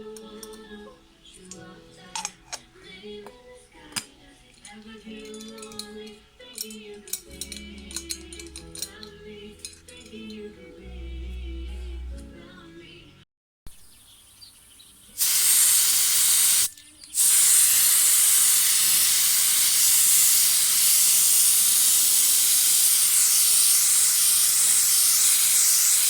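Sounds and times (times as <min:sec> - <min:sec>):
compressed air hissing from spray gun: 0:15.2 - 0:26.0.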